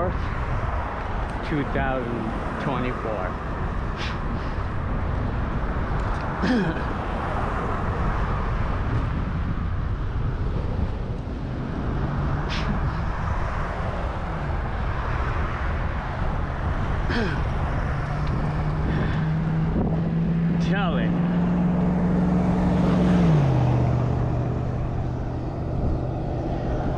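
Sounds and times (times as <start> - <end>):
passing motor vehicle hum: 0.0 - 26.9
wind buffeting microphone: 0.0 - 26.9.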